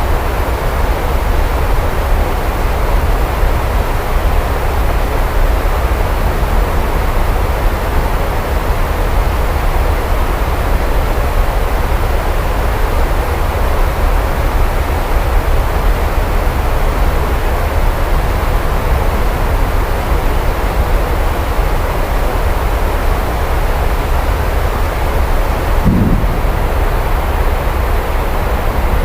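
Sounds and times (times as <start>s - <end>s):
heavy rain: 0.0s - 29.0s.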